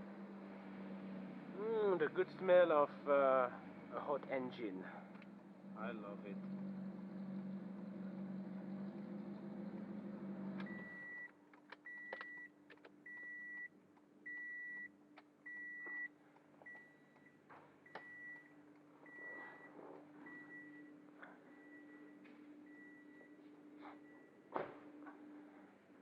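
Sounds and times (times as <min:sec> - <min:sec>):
car engine idling: 0:00.0 - 0:11.5
faint hum: 0:00.0 - 0:26.0
clicks: 0:10.5 - 0:17.3
car warning chime beeping: 0:10.6 - 0:11.3, 0:11.9 - 0:13.7, 0:14.3 - 0:14.9, 0:15.5 - 0:16.1.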